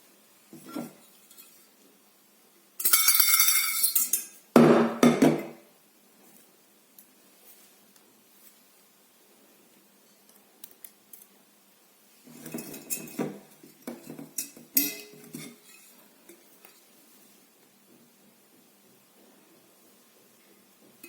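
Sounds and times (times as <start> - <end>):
teapot parts clinking: 2.8 - 4.4, 12.4 - 16.0.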